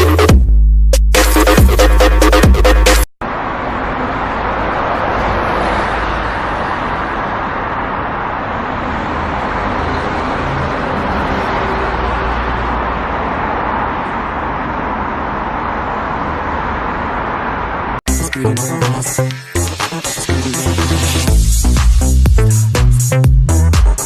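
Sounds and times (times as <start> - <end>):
electronic music: 0.0 - 3.1, 18.1 - 24.0
rushing outdoor noise: 3.2 - 18.0.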